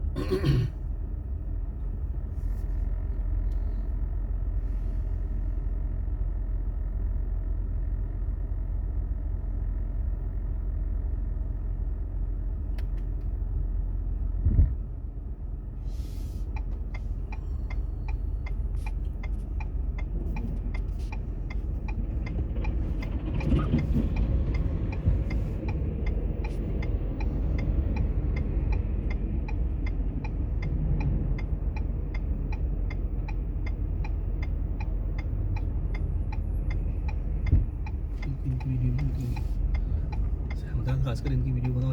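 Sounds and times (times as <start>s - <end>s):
car engine and tyres rumbling: 0.0s - 41.9s
turn signal ticking: 16.4s - 41.9s.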